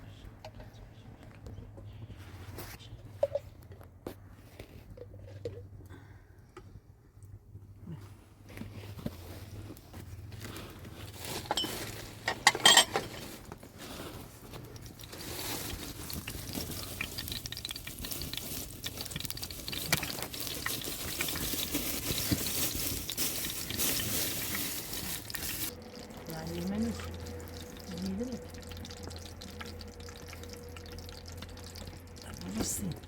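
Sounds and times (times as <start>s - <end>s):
utensils and dishes clattering: 11.3s - 13.5s.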